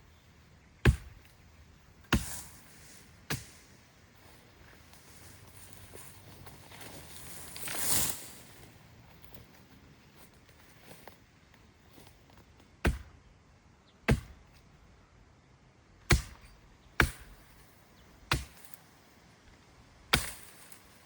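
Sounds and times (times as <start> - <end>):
tool striking wood: 12.8 - 13.2, 14.1 - 14.4, 16.1 - 17.4.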